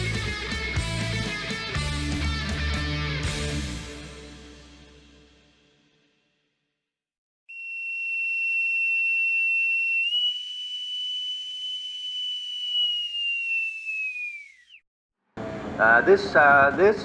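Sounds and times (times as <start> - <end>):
boatswain's pipe whistle: 7.5 - 14.8.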